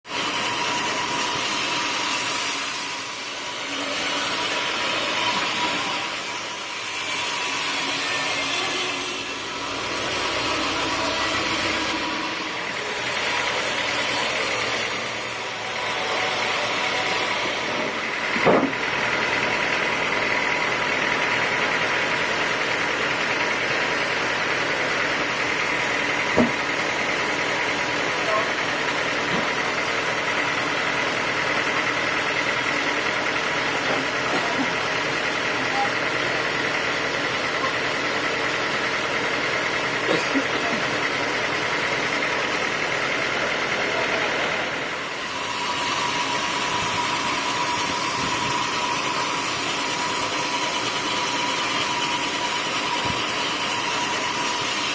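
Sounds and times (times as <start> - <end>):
band saw cutting log: 0.1 - 54.9
motor running steadily: 0.1 - 54.9
sharp knocks: 18.4 - 18.8, 26.3 - 26.6.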